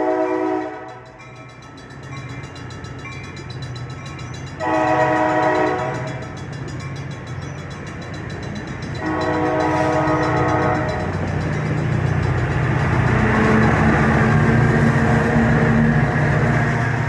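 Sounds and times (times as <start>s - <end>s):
train horn blast: 0.0s - 1.2s, 4.6s - 6.2s, 9.0s - 11.3s
diesel locomotive running: 0.0s - 17.0s.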